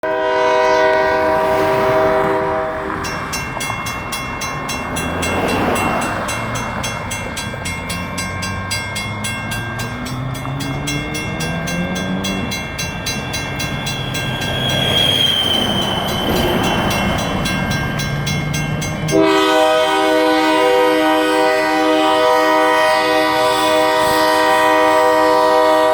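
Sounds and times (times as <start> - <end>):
locomotive horn chord: 0.0 - 3.3, 19.1 - 25.9
crossing bells ringing: 0.0 - 25.9
diesel locomotive engines: 0.0 - 25.9.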